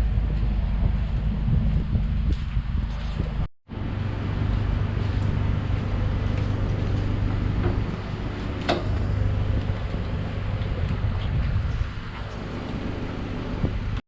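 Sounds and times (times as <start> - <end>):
car engine idling: 3.7 - 14.0.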